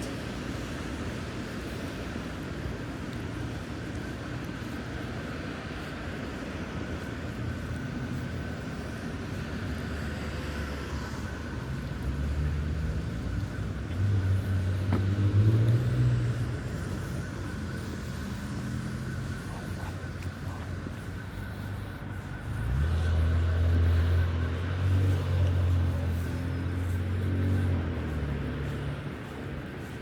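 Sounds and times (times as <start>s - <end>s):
low rumble of road traffic: 0.0s - 30.0s
car engine passing close: 9.4s - 30.0s.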